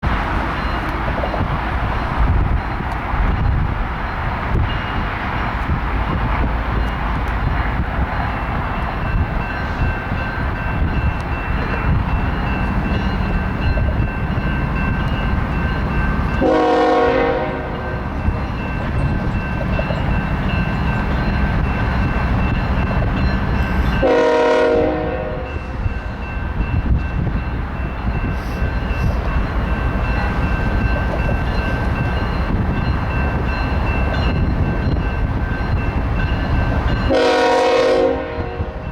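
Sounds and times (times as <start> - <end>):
freight train wheels rumbling: 0.0 - 38.9
locomotive horn blasts: 16.4 - 18.0, 24.0 - 25.8, 37.1 - 38.9.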